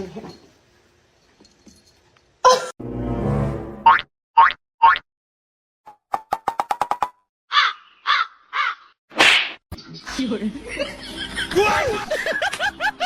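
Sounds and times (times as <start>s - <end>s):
harsh caw-like animal calls: 7.5s - 9.0s
sharp slap: 9.1s - 9.6s.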